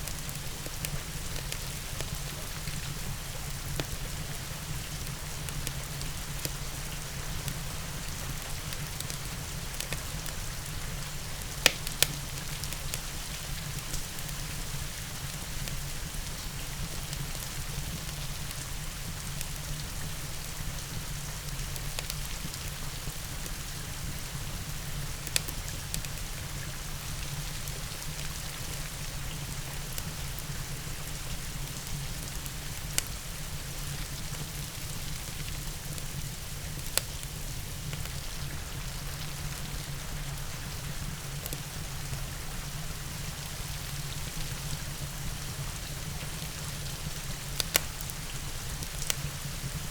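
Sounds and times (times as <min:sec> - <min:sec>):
steady rain: 0:00.0 - 0:49.9
wood fire crackling: 0:00.0 - 0:49.9
sharp pops from fire: 0:11.1 - 0:14.3, 0:25.2 - 0:26.2, 0:46.3 - 0:49.3.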